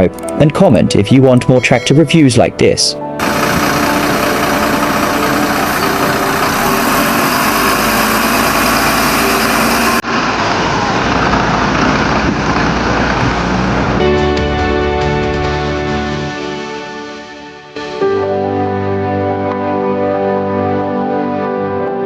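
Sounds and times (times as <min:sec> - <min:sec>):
tractor engine running: 0:03.2 - 0:14.0.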